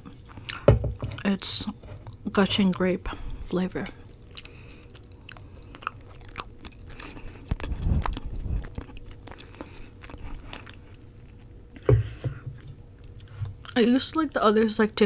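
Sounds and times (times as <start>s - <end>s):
chewing with wet mouth clicks: 0.3s - 1.3s, 3.8s - 11.9s, 13.0s - 13.8s.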